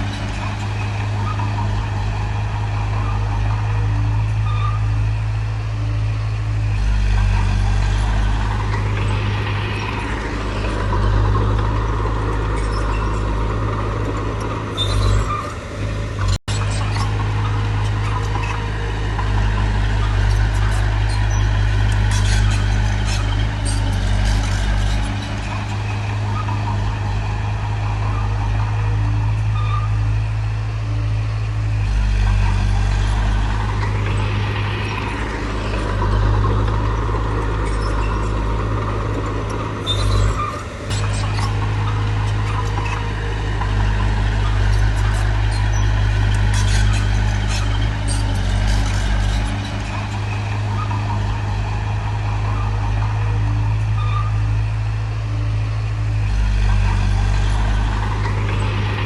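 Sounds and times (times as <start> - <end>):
diesel engine running under load: 0.0 - 59.0
metallic clanks and rattles: 32.2 - 51.6.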